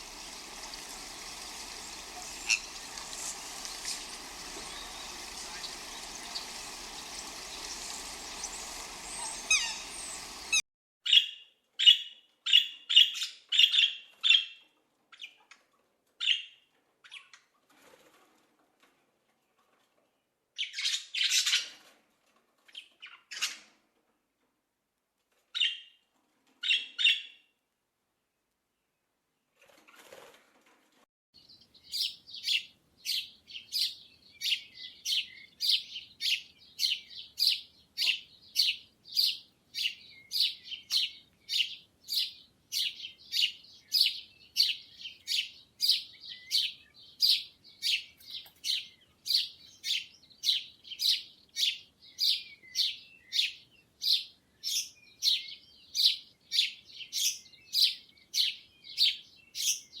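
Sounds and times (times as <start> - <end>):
bird chirping: 0.0 - 11.3, 31.4 - 60.0.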